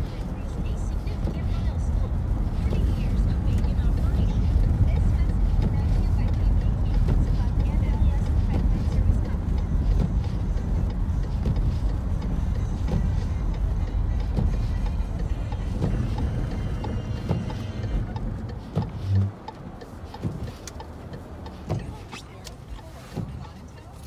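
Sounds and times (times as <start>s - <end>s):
engine and tyres rumbling: 0.0s - 24.0s
music from car radio: 0.0s - 24.0s
short low tone: 19.1s - 19.4s.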